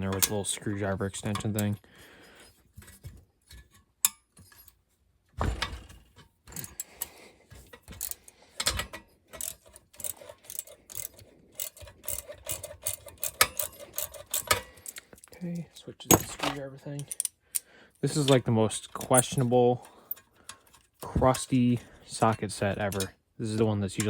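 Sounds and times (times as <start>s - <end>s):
socket ratchet clicking: 7.8s - 15.2s.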